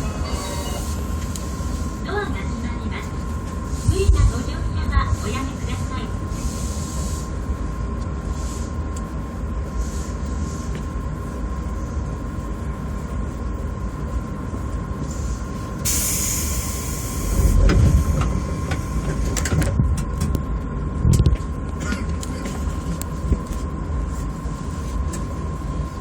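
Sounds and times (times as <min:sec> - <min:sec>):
train rumble: 0:00.0 - 0:26.0
burst of hiss: 0:15.8 - 0:17.6
thin whine: 0:15.8 - 0:19.5.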